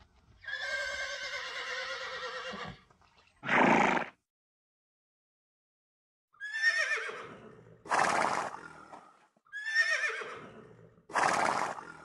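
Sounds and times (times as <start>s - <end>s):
horse whinnying: 0.4s - 4.1s, 6.4s - 8.6s, 9.5s - 11.8s.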